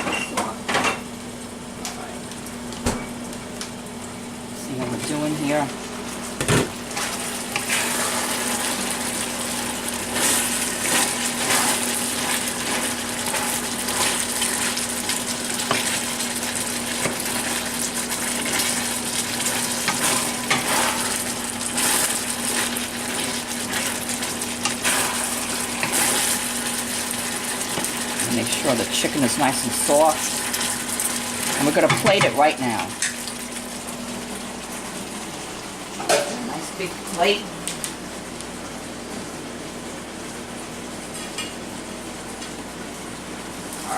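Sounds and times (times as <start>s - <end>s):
food sizzling in a wok: 5.8s - 37.4s
spatula scraping wok: 7.0s - 8.8s, 24.6s - 27.9s.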